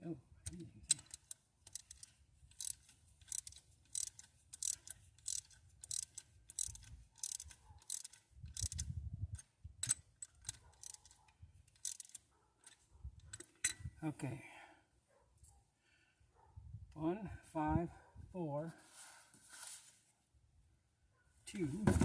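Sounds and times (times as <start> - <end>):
ratchet wrench clicking: 0.5 - 13.8.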